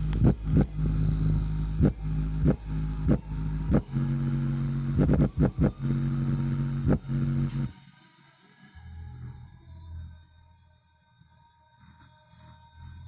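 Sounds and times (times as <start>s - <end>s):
bass-heavy music from subwoofer: 0.0s - 7.7s.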